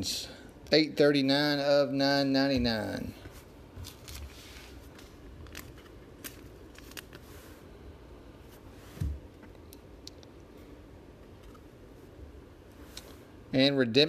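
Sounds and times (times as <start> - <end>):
cards and foil packs rustling: 3.3 - 7.5.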